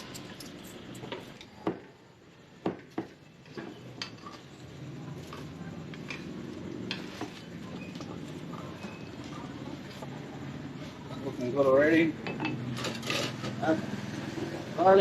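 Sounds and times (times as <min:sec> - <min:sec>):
dishes and utensils clinking: 0:03.4 - 0:04.5, 0:12.2 - 0:13.6.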